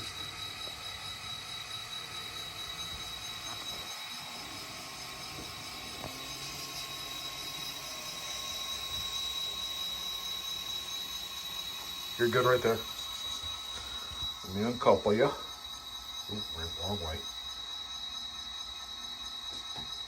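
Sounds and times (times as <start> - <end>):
model train high whine: 0.0 - 20.0.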